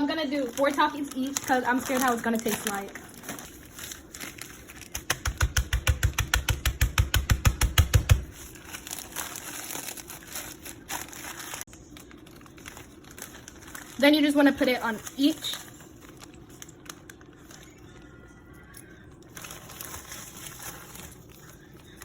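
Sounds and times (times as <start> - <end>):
plastic bag crinkling: 0.0 - 5.2, 8.2 - 22.0
chips being pounded: 4.8 - 8.4.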